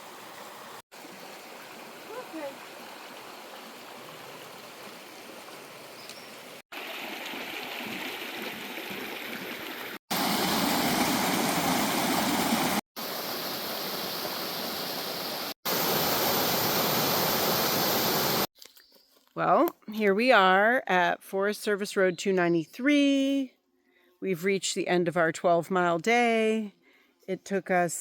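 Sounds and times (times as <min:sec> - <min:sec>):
rushing stream water: 0:00.0 - 0:18.5.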